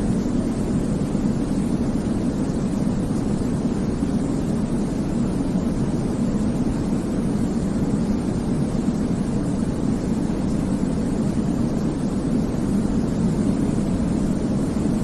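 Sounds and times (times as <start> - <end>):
deep rumbling white noise: 0.0 - 15.0.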